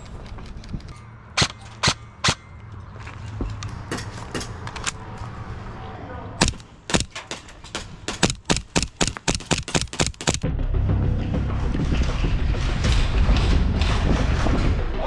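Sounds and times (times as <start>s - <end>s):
airsoft guns firing: 6.4s - 10.4s.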